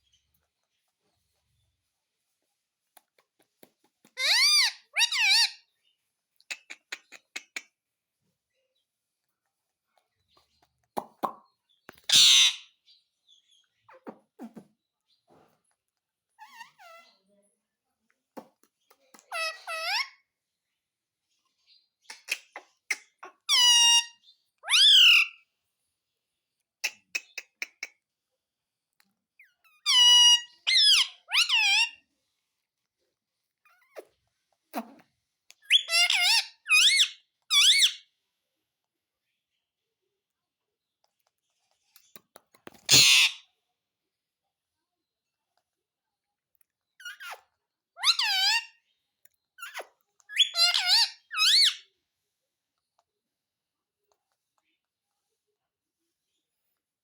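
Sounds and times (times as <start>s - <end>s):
parrot harsh squawk: 4.2s - 5.6s, 12.1s - 12.7s, 19.3s - 20.2s, 23.3s - 25.4s, 29.8s - 32.0s, 35.7s - 38.0s, 42.9s - 43.4s, 48.0s - 48.7s, 49.6s - 51.8s.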